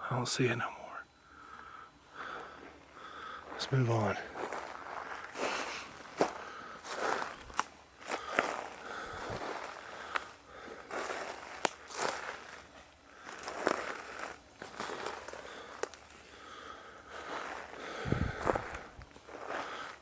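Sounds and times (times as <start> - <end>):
footsteps crunching on trail: 1.4 - 20.0
sharp cracks: 10.9 - 12.5.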